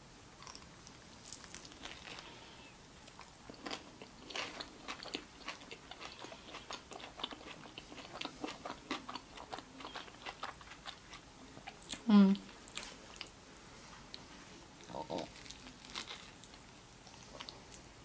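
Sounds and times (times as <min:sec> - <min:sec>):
chewing with mouth clicks: 0:00.4 - 0:02.4, 0:03.1 - 0:13.4.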